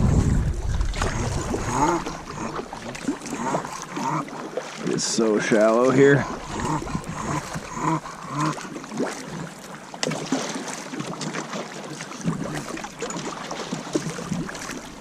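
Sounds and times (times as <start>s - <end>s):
wind on microphone: 0.0s - 3.0s, 6.2s - 7.8s
kayak splashing in water: 0.0s - 15.0s.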